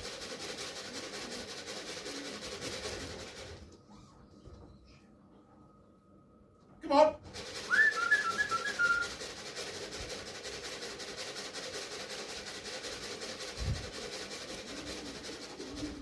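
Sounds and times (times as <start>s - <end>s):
person whistling: 7.7s - 9.2s.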